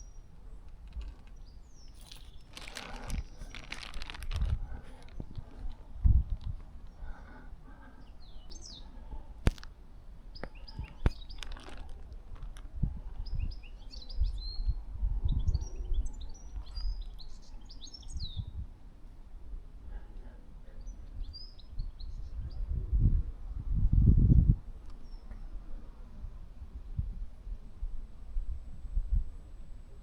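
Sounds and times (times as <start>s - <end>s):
small birds chirping: 0.0s - 9.7s, 10.3s - 12.2s, 13.1s - 18.6s, 20.6s - 22.7s, 24.9s - 25.6s
low irregular rumble: 0.0s - 13.6s.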